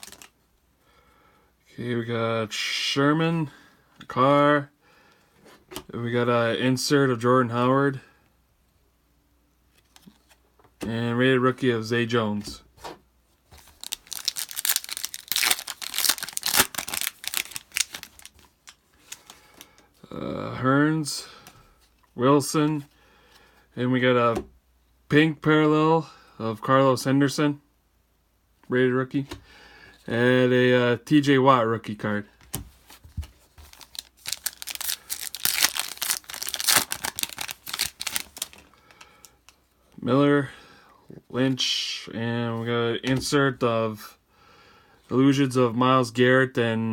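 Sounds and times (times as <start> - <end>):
foil wrapper tearing and crinkling: 0.0 - 0.3, 13.6 - 19.6, 33.6 - 39.3.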